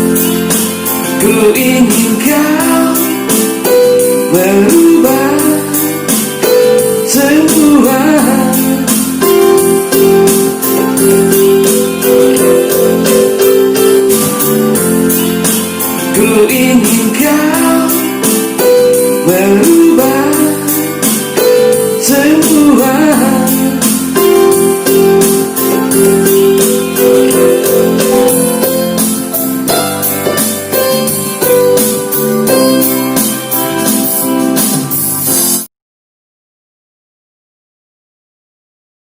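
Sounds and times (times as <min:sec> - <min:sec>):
keyboard notes: 0:00.0 - 0:35.7
steady beat: 0:00.0 - 0:35.7
person singing: 0:01.0 - 0:29.0.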